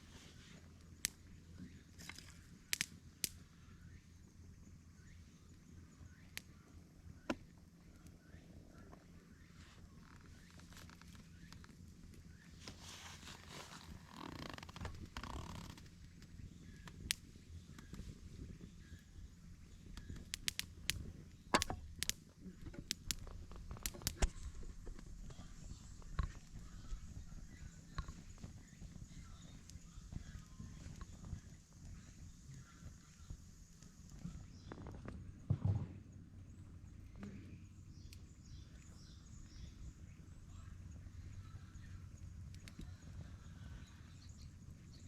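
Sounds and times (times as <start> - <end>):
faint low hum: 0.0 - 45.0
low background rumble: 0.0 - 45.0
wood fire crackling: 2.0 - 3.5, 9.3 - 34.8, 40.8 - 44.9
sharp snaps: 2.1 - 3.4, 13.4 - 18.0, 19.9 - 24.4, 42.5 - 43.0.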